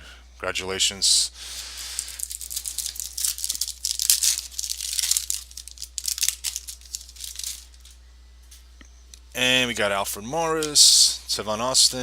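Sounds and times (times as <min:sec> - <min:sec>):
plastic packaging crinkling: 0:01.6 - 0:08.0.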